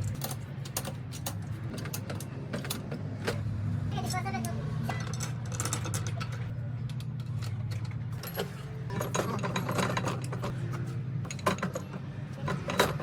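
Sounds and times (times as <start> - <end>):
hand tools clanking on metal: 4.8 - 13.0.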